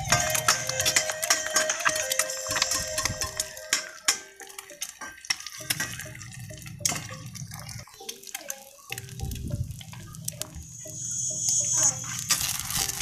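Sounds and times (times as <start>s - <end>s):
metal spatula knocking pan: 0.0s - 7.1s
eggs sizzling in oil: 0.0s - 13.0s.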